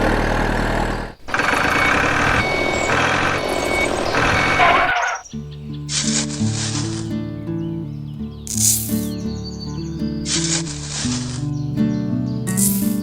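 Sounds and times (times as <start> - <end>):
heavy vehicle engine running: 0.0 - 5.3
reversing beeper: 1.3 - 5.3.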